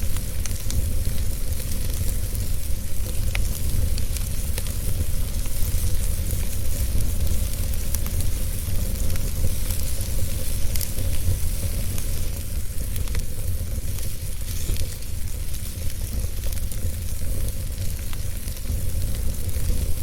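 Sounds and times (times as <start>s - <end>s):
fire crackling: 0.0s - 20.0s.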